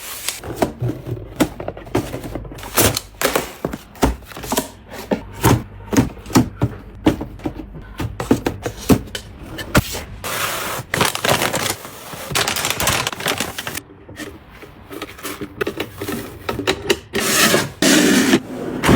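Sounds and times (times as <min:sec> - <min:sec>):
packaging rustling and crinkling: 0:10.3 - 0:13.8.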